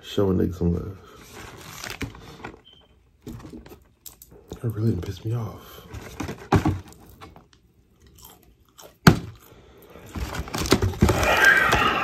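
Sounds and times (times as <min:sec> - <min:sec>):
crunching fried chicken: 0:07.9 - 0:12.0.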